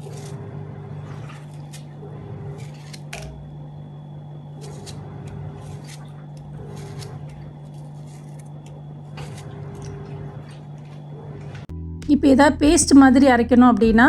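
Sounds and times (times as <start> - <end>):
knife crunching frozen tomato: 4.6 - 11.1.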